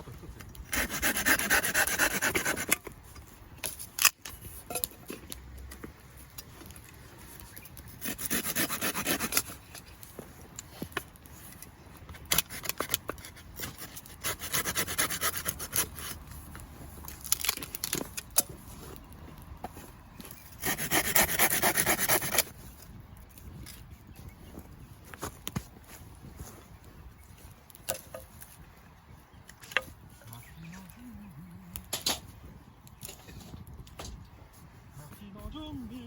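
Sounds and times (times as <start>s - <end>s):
knife scraping wood: 0.7s - 2.9s, 8.0s - 9.8s, 12.2s - 16.3s, 20.6s - 22.5s.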